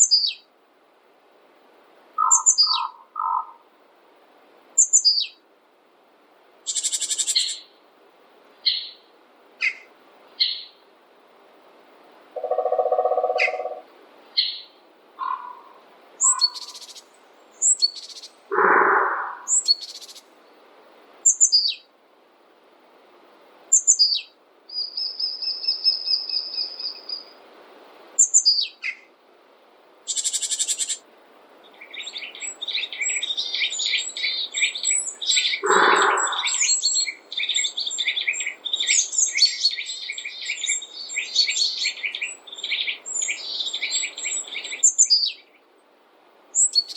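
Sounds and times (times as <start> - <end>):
harsh low bird calls: 2.2 - 3.6, 12.4 - 17.0, 17.6 - 20.2, 32.0 - 38.9
rapid bird twittering: 2.2 - 3.6, 6.7 - 7.7, 12.4 - 20.3, 30.1 - 31.0, 31.8 - 45.5, 46.6 - 46.9
birds chirping and whistling: 12.4 - 13.8, 16.2 - 17.0, 17.6 - 20.2, 32.0 - 45.3.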